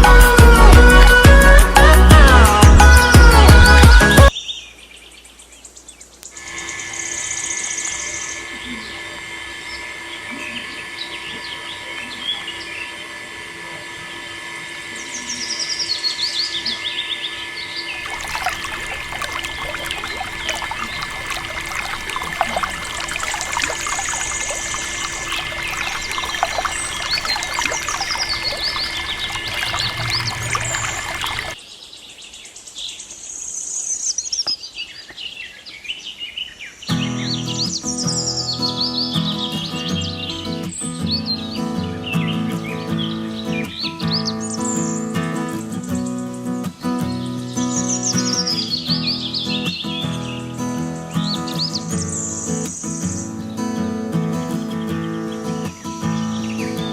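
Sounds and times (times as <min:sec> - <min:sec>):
small birds chirping: 0:15.0 - 0:40.6.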